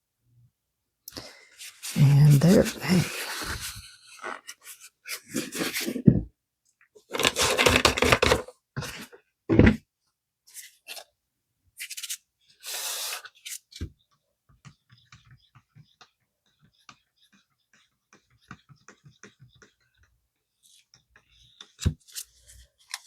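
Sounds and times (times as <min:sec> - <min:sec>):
stirring scratching and ticking: 0:13.4 - 0:22.2.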